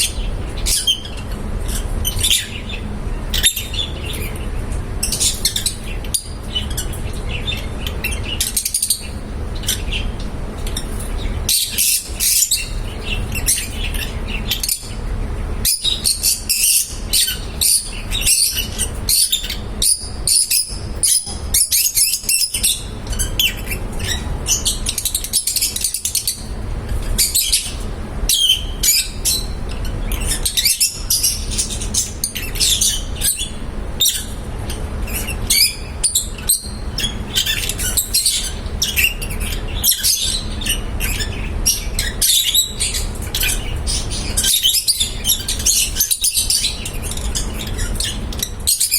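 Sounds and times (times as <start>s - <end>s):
lovebirds chirping: 0.0s - 48.9s.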